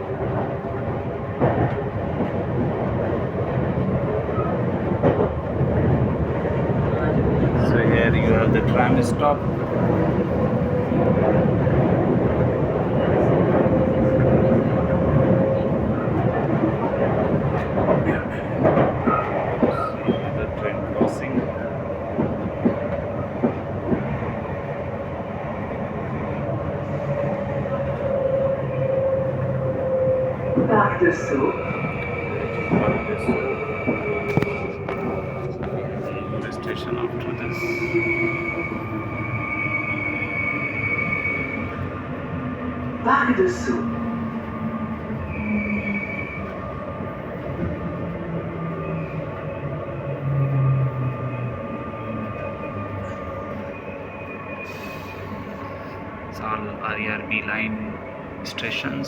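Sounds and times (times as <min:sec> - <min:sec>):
train wheels rumbling on track: 0:00.0 - 0:59.0
rail-joint clacks: 0:16.1 - 0:24.1.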